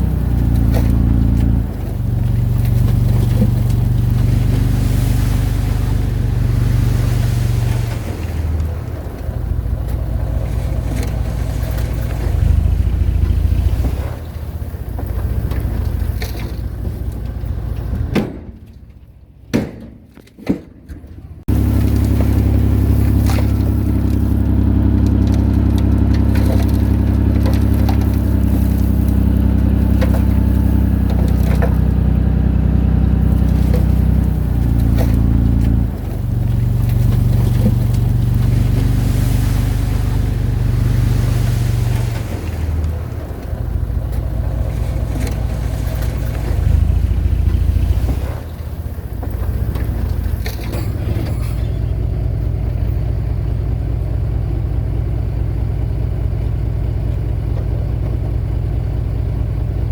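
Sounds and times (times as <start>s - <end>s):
heavy machinery diesel engine: 0.0s - 19.2s, 21.2s - 59.9s.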